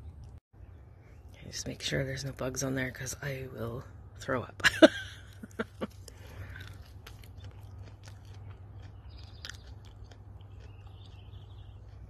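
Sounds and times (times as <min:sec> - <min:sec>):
low steady hum: 0:00.0 - 0:12.0
person chewing crunchy leaves: 0:05.2 - 0:12.0.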